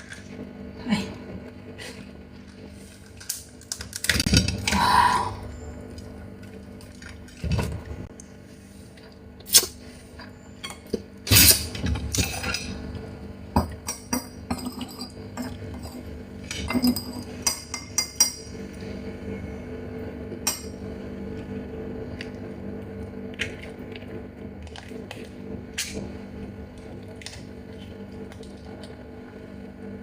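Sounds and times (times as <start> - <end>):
crab shell cracking: 3.1 - 4.3.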